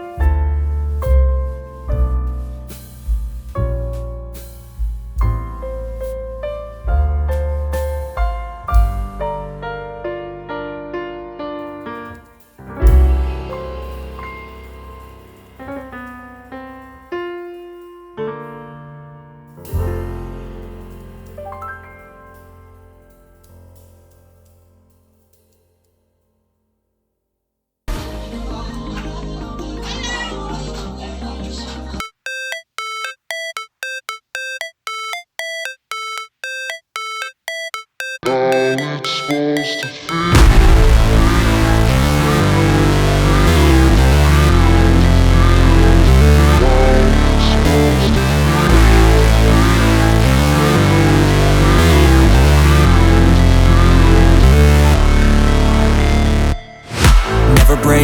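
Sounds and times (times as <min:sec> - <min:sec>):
background music beat: 0:32.0 - 0:47.0, 0:56.6 - 0:58.0
deep bass hit: 0:40.4 - 0:43.3.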